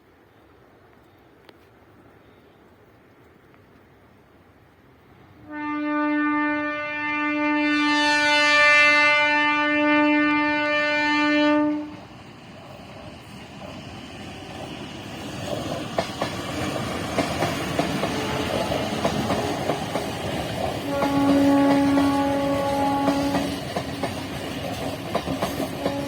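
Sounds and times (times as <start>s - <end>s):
train rumbling: 0.0s - 26.0s
locomotive horn blast: 5.4s - 12.0s, 20.9s - 23.5s, 25.8s - 26.0s
wheels clacking over rail joints: 14.6s - 26.0s.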